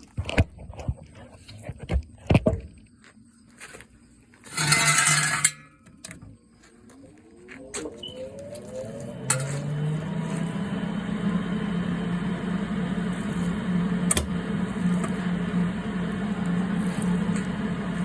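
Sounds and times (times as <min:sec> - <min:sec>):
welder humming and crackling: 0:07.1 - 0:18.0
welder clicks: 0:14.0 - 0:15.2.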